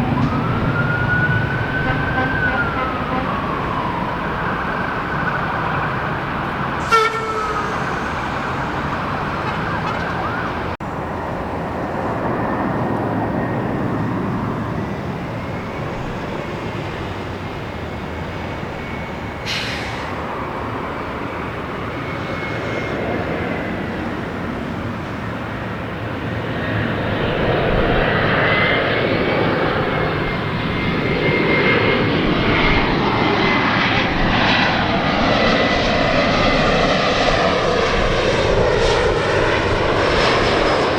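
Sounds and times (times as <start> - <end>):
siren wailing: 0.0 - 10.8
steady background roar: 0.0 - 40.9.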